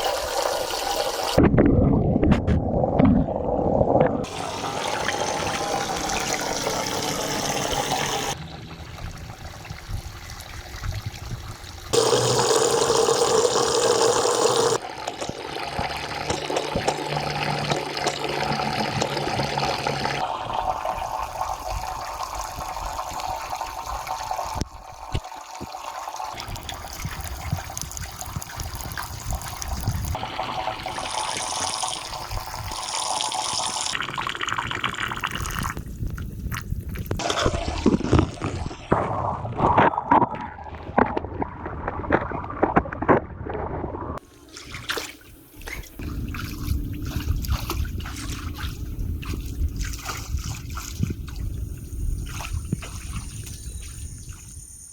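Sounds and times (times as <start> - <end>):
running and pouring water: 0.0 - 1.4, 4.2 - 39.6.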